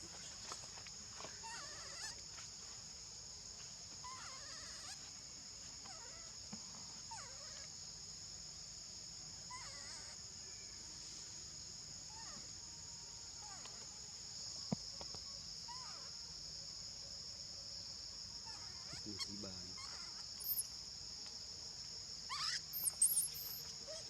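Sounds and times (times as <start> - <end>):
high-pitched insect drone: 9.5 - 21.2, 22.2 - 24.0
short squeaky calls: 18.4 - 20.7, 22.3 - 24.0.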